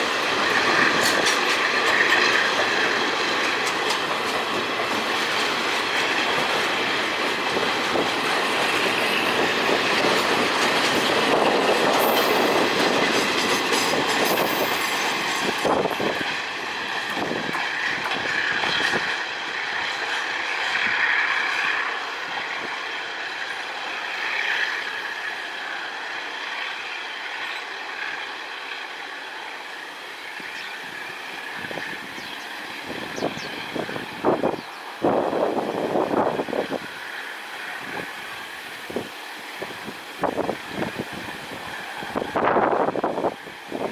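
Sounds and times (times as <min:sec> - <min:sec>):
wheels clattering over rail joints: 0:00.0 - 0:25.4.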